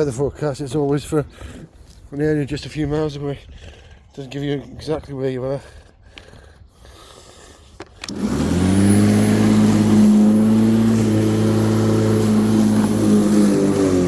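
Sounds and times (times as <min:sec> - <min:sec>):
electric lawnmower motor whining: 0:08.0 - 0:14.0.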